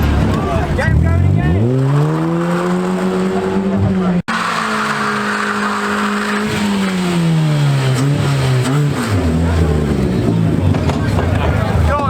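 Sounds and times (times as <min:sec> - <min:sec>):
car engine at high revs: 0:00.0 - 0:12.0
spinning tyre squeal: 0:04.3 - 0:10.1.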